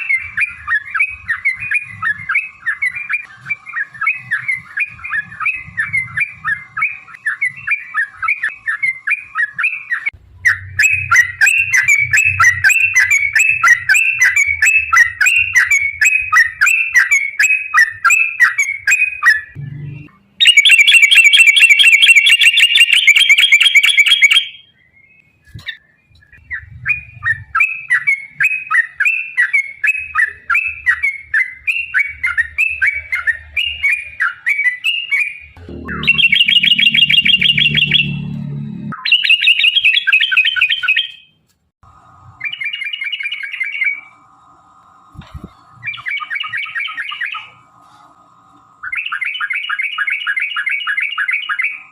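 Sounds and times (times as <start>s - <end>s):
high dense bird trill: 0.0s - 41.4s
bulbuls singing bubbling phrases: 35.6s - 38.6s.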